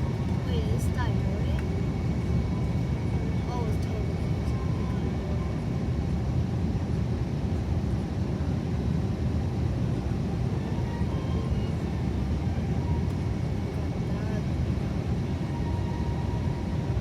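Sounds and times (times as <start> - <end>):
airplane cabin engine rumble: 0.0 - 17.0.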